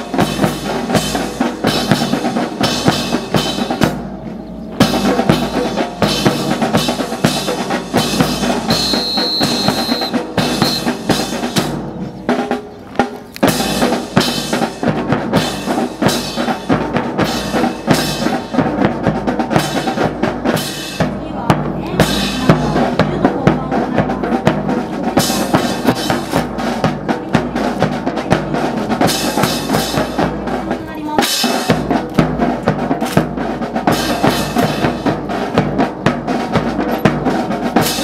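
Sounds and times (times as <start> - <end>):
snare and bass drum cadence: 0.0 - 38.0
short high steady tone: 8.8 - 10.9.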